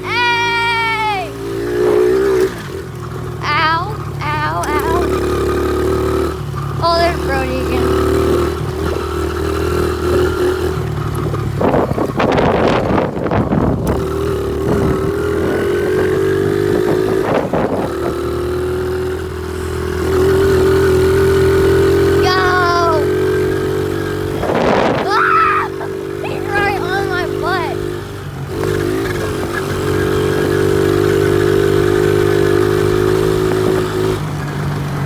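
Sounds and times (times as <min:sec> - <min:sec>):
small motorbike engine running: 0:00.0 - 0:35.0
wind noise on microphone: 0:10.0 - 0:18.6, 0:24.2 - 0:25.5.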